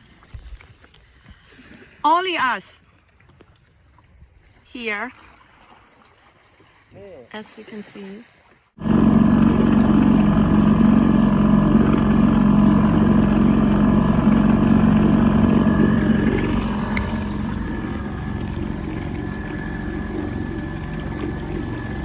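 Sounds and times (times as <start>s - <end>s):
boat engine running: 8.8s - 22.0s.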